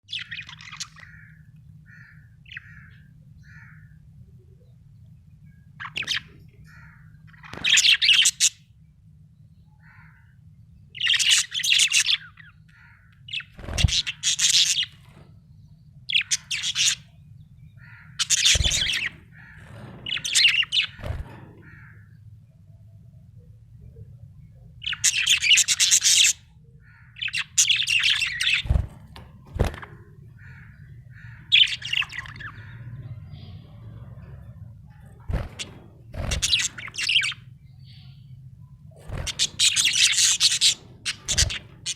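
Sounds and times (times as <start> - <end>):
steady low hum: 0.0 - 41.9
budgerigar chirping and chattering: 36.1 - 38.1, 39.1 - 41.9.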